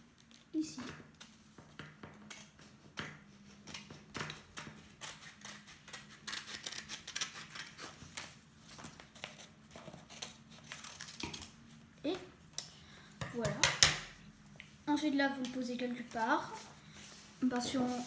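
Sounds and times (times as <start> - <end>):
scissors snipping paper: 2.4 - 11.6.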